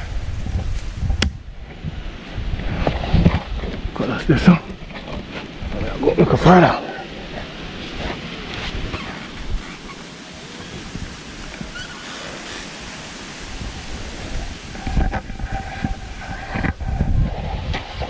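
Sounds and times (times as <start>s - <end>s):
leaves rustling: 0.0s - 18.0s
wind gusting on microphone: 0.0s - 18.0s.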